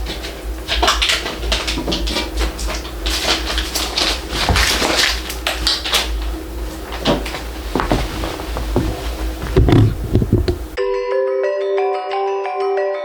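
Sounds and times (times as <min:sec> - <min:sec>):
low steady hum: 0:00.1 - 0:10.8
packaging scrapes and rustles: 0:07.8 - 0:10.8.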